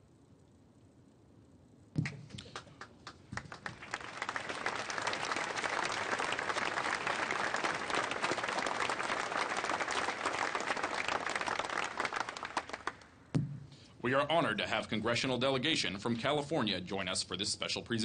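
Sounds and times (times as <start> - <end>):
crowd applauding: 2.0 - 13.2.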